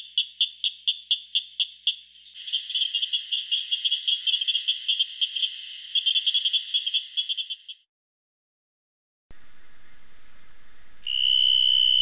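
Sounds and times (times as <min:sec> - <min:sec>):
frogs calling with rapid clicks: 0:00.0 - 0:07.9, 0:11.0 - 0:12.0.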